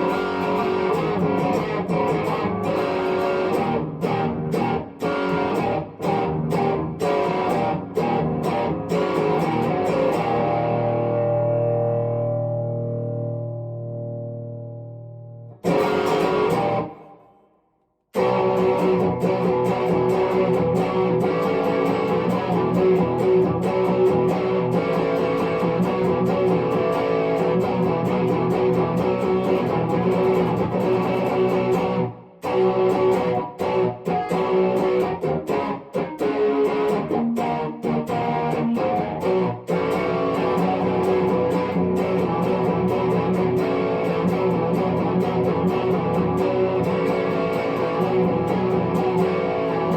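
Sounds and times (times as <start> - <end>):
electric guitar through amplifier: 0.0 - 17.4, 18.2 - 49.9.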